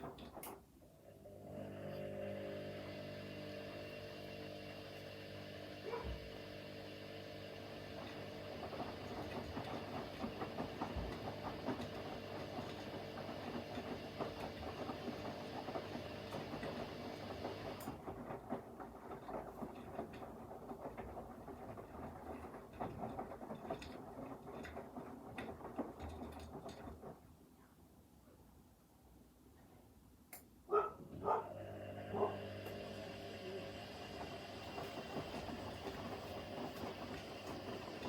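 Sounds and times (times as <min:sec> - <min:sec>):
washing machine motor humming: 0:00.0 - 0:27.2, 0:31.1 - 0:38.0
wet laundry tumbling: 0:07.4 - 0:27.4, 0:32.6 - 0:38.0.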